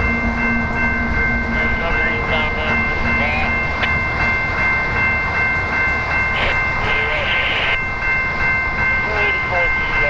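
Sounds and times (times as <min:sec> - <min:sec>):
high-pitched whine: 0:00.0 - 0:08.0.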